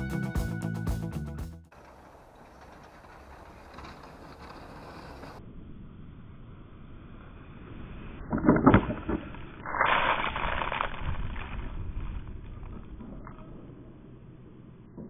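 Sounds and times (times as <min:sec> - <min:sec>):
snow scraping: 0:01.8 - 0:05.4, 0:09.6 - 0:12.6.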